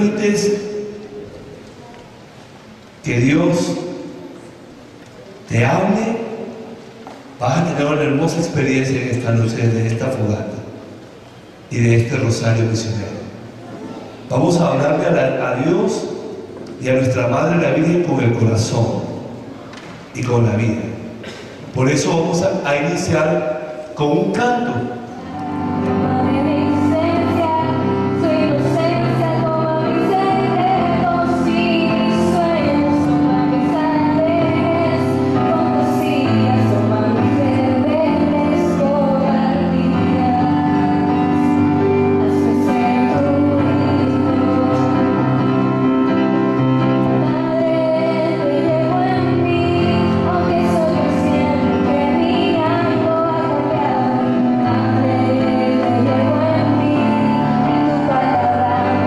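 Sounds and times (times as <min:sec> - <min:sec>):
woman singing hymn: 0:25.0 - 0:59.0.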